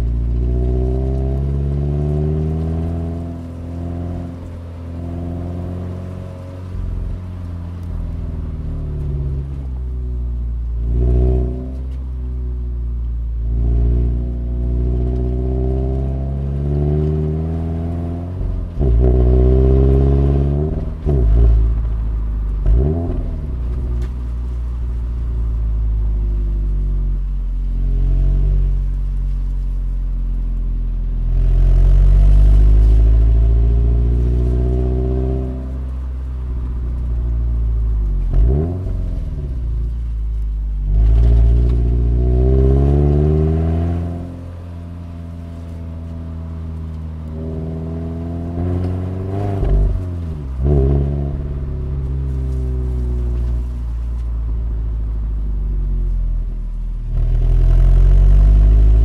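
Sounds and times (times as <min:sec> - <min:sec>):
car engine revving from cabin: 0:00.0 - 0:07.9, 0:10.8 - 0:12.0, 0:13.4 - 0:21.8, 0:22.6 - 0:24.5, 0:31.3 - 0:36.0, 0:37.5 - 0:54.3, 0:57.1 - 0:59.0.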